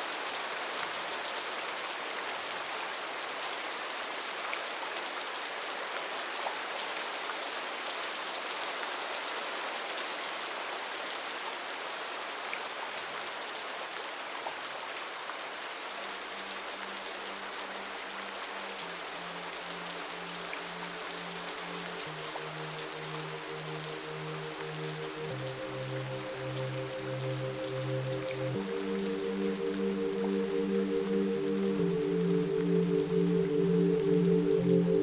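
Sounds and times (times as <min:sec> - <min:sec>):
steady rain falling: 0:00.0 - 0:35.0
low pulsing music note: 0:19.6 - 0:35.0.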